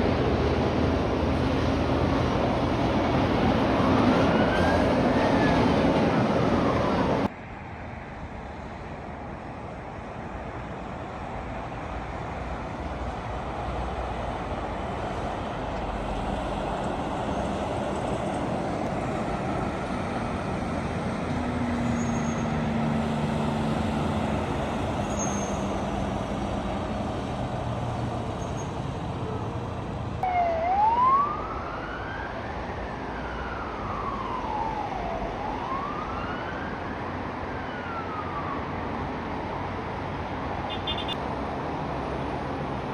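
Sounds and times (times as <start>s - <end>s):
road traffic: 0.0s - 42.9s
emergency vehicle siren wailing: 2.9s - 7.3s, 29.2s - 39.6s
heavy vehicle engine drone passing: 13.3s - 30.2s.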